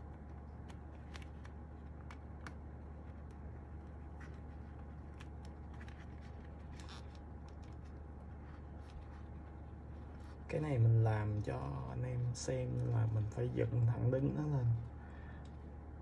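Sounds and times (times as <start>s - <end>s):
faint keyboard parts clicking: 0.0s - 9.3s
steady low hum: 0.0s - 16.0s.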